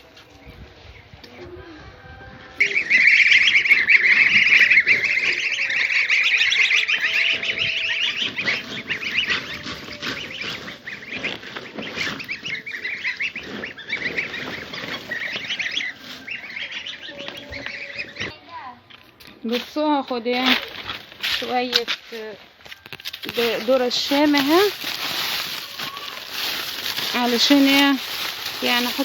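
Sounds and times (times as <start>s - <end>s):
poultry quacking and squawking: 1.2s - 18.4s, 23.2s - 29.0s.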